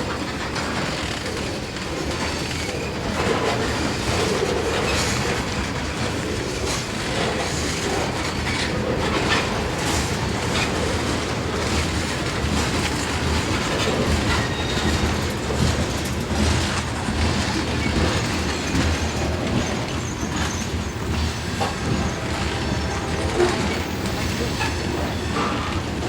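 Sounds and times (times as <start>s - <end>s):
freight train cars rolling: 0.0s - 26.0s
faint high wheel squeal: 14.1s - 15.4s, 17.7s - 26.0s.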